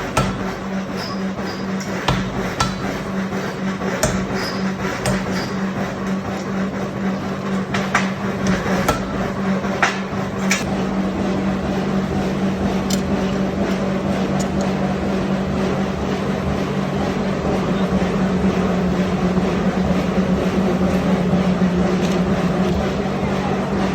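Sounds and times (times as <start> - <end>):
sharp metal knocks: 0.0 - 3.0
machinery humming: 0.0 - 23.9.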